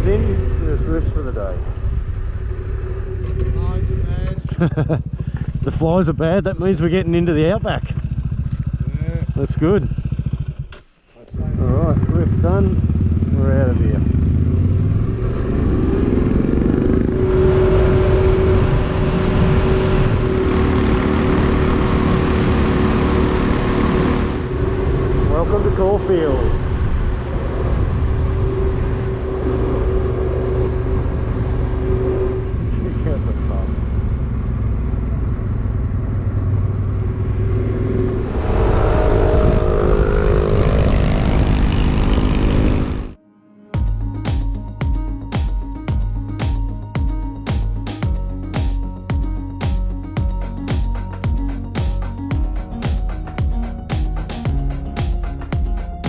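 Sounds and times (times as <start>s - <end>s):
motorcycle engine accelerating: 0.0s - 43.2s, 43.8s - 56.0s
wind noise: 14.8s - 32.8s, 37.5s - 43.0s.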